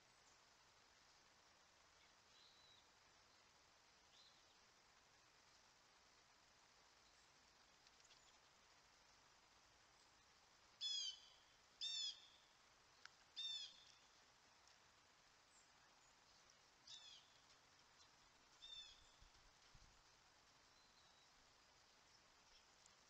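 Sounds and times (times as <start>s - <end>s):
bird calling slurred notes: 10.8s - 12.4s, 13.4s - 14.0s.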